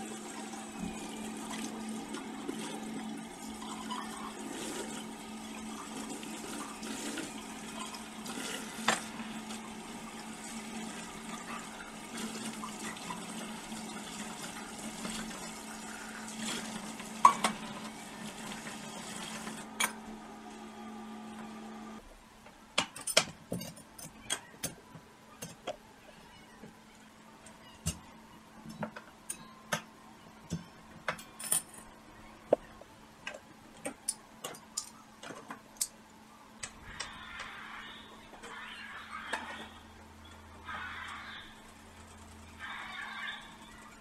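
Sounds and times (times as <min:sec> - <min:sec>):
running water: 0:00.0 - 0:19.9.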